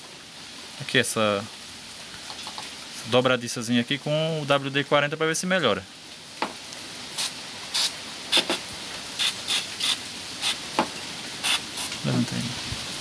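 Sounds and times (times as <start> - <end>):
aerosol spray hissing puffs: 7.2 - 10.6, 11.4 - 12.0.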